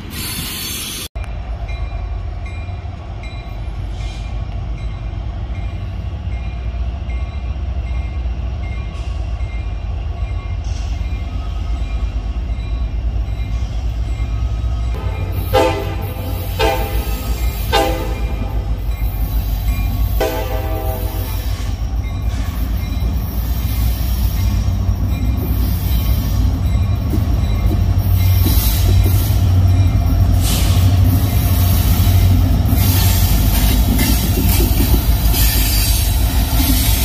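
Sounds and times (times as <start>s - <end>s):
train rumbling past: 0.0s - 37.0s
locomotive horn blasts: 15.0s - 18.8s, 20.2s - 21.4s.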